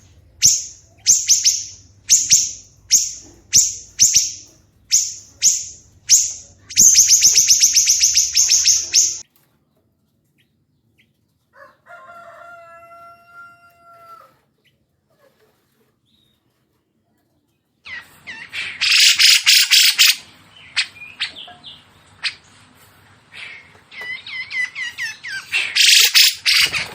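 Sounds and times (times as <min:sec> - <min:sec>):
harsh bird chatter: 0:00.0 - 0:09.2, 0:17.9 - 0:26.9
bird chirps and trills: 0:00.2 - 0:09.2, 0:17.9 - 0:22.7, 0:23.3 - 0:26.9.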